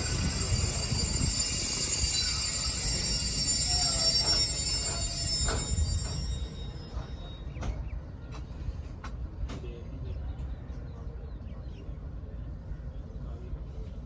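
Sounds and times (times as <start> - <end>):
wheel squeal: 0.0 - 7.6
train rumbling: 0.0 - 14.0.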